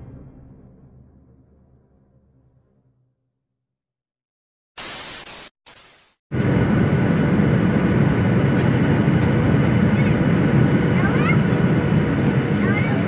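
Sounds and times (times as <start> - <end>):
short bursts of hiss: 4.8 - 6.2
vehicle interior rumble: 6.4 - 13.0.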